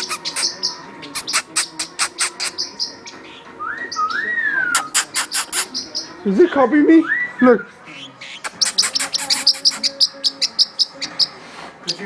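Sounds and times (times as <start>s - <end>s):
parrot clicking: 0.0s - 0.6s, 1.2s - 2.6s, 4.8s - 5.7s, 8.4s - 9.9s
parrot whistle: 0.0s - 2.8s, 3.6s - 6.0s, 8.4s - 10.1s.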